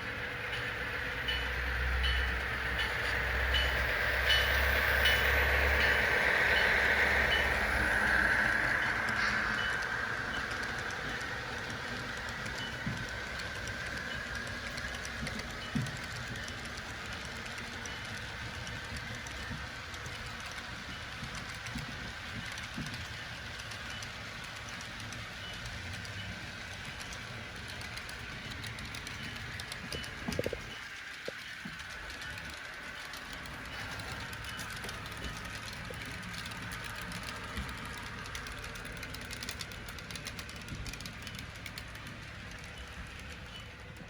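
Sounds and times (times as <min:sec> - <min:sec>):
model train whine: 0:00.0 - 0:44.0.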